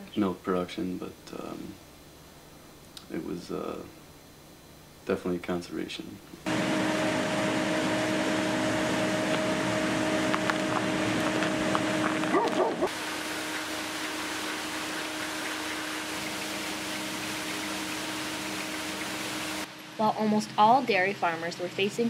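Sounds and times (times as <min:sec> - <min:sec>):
mechanical hum: 0:00.0 - 0:22.0
animal yelps: 0:12.3 - 0:12.9.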